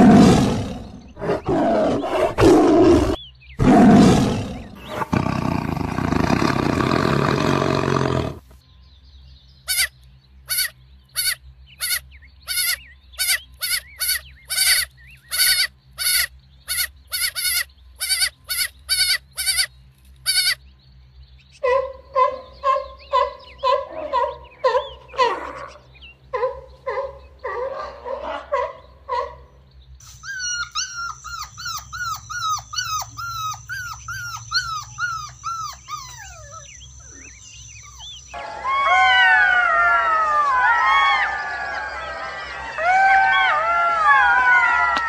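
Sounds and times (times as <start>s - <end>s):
tiger roaring and growling: 0.0s - 8.5s
goat bleating: 10.5s - 20.6s.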